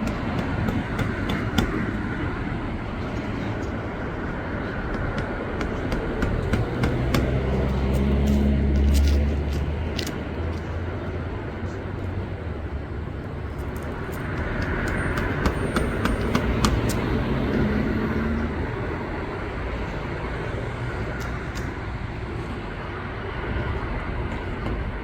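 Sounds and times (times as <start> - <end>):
outdoor background rumble: 0.0 - 25.0.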